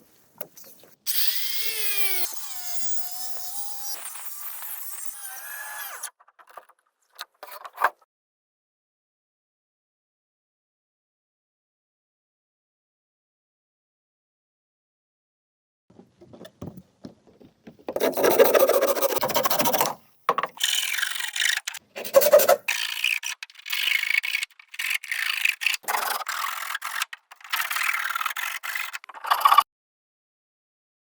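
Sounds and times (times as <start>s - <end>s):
hand tool rasping on bamboo: 17.9s - 20.0s, 20.6s - 29.6s.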